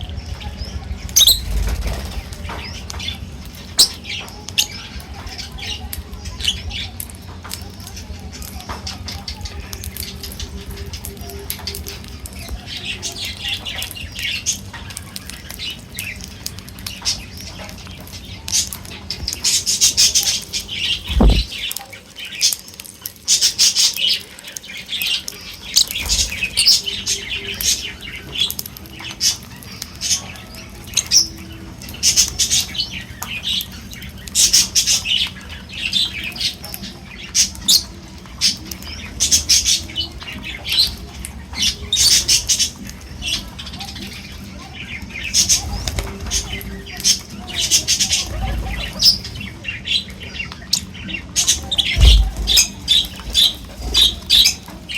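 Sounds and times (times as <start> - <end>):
birds squawking and chirping: 0.0 - 54.9
low thuds: 21.0 - 21.7, 52.0 - 52.8.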